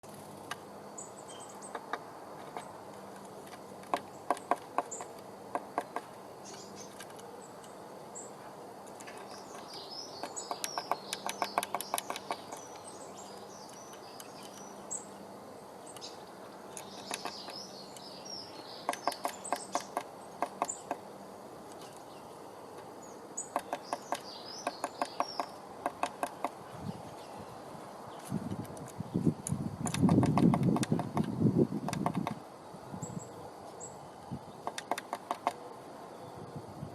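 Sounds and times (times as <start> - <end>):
high chirping bird calls: 1.0 - 2.7, 4.0 - 21.1, 21.8 - 28.4
bird pecking taps: 29.8 - 31.3, 34.6 - 35.6.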